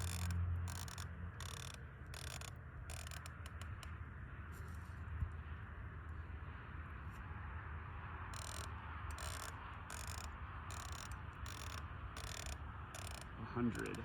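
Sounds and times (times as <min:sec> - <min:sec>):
rifle scope turret clicks: 0:00.0 - 0:04.0, 0:08.3 - 0:14.0.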